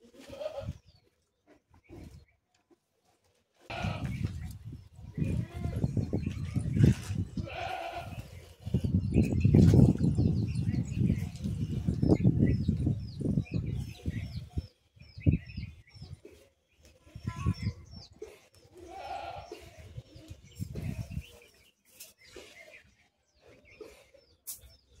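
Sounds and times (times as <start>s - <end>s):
birds chirping: 0.0s - 2.7s, 3.7s - 25.0s.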